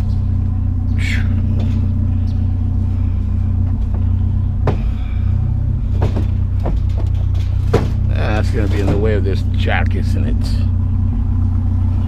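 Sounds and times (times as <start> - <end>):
vehicle engine idling: 0.0 - 12.0
scrap metal clanking: 2.9 - 9.6.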